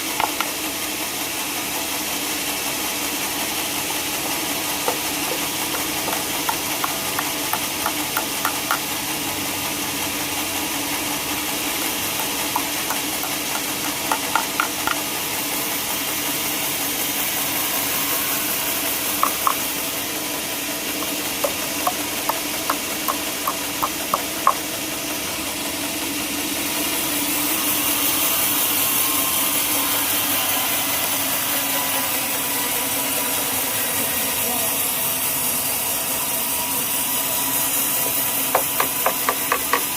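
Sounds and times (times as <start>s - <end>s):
sawmill machinery running: 0.0s - 39.9s
sharp clicks and knocks: 0.2s - 0.6s, 4.2s - 8.9s, 11.8s - 15.1s, 19.2s - 19.6s, 21.0s - 24.7s
loud high hiss: 2.1s - 23.8s.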